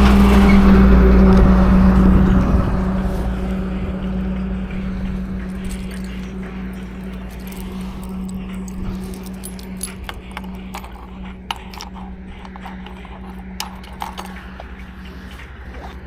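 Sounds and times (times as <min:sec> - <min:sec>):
motorcycle engine running: 0:00.0 - 0:16.0
jingling rattles: 0:04.2 - 0:16.0.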